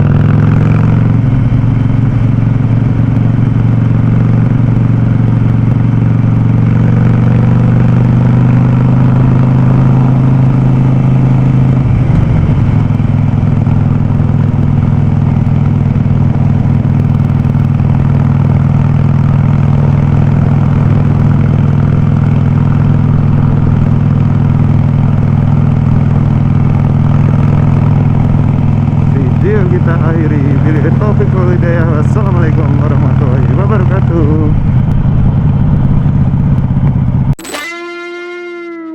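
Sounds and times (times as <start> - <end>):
motorcycle engine running loud: 0.0 - 38.9.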